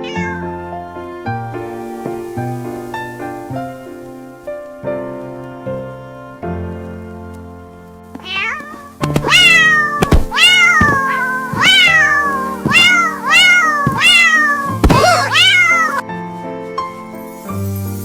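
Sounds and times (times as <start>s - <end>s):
cat meowing: 0.0s - 0.5s, 8.2s - 16.0s
soft background music: 0.0s - 18.0s.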